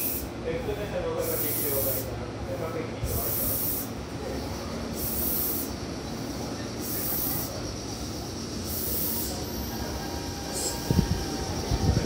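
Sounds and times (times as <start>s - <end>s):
high hissing: 0.0s - 0.3s, 1.2s - 2.2s, 3.1s - 12.0s
train wheels rumbling on rails: 1.1s - 12.0s.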